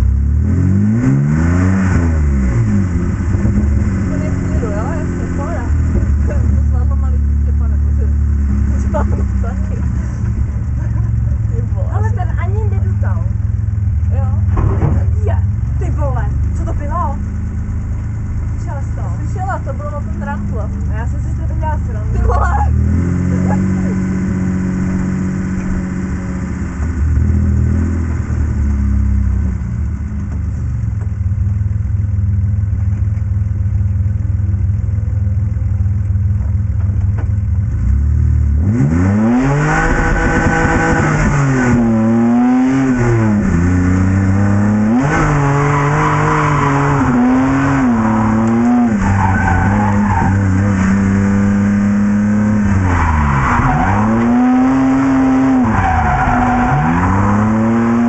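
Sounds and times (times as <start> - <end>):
car engine revving: 0.0 - 58.0
tyres squealing: 45.0 - 51.2.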